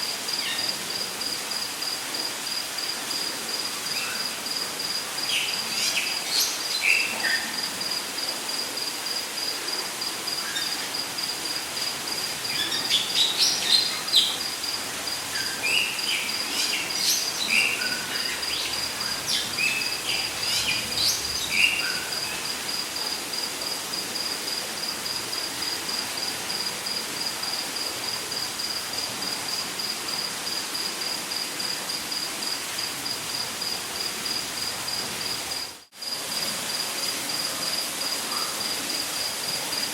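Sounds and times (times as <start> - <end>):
background hiss: 0.0 - 39.9
insect trilling: 12.1 - 23.4.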